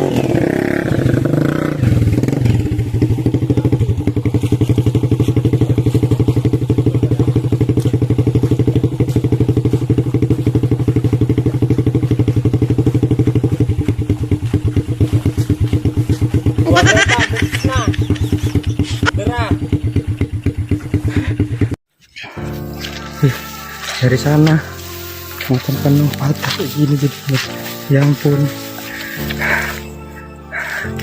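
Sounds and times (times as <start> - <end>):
motorcycle engine idling: 0.0 - 21.8, 22.6 - 31.0.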